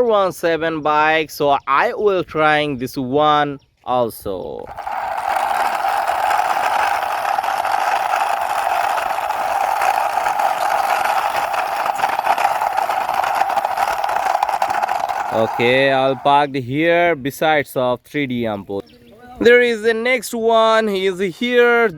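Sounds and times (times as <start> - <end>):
toy motorbike whirring: 4.6 - 16.4.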